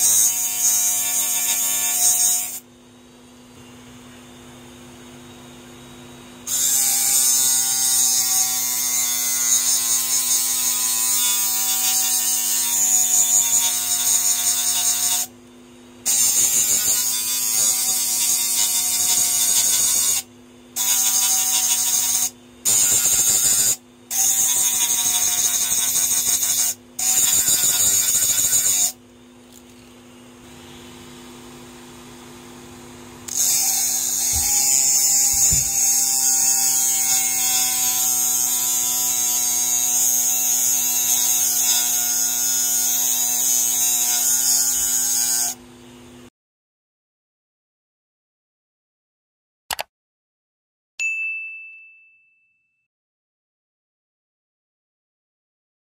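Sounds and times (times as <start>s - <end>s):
knife blade grinding on sandpaper: 20.8s - 28.9s, 33.3s - 39.3s
motor humming: 33.3s - 37.8s.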